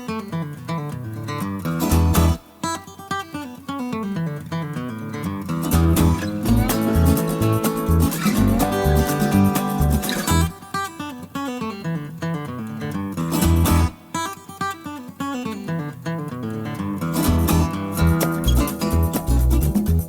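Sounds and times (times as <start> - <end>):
acoustic guitar picking and strumming: 0.0 - 20.0
bass and drums: 5.7 - 10.5, 17.3 - 20.0.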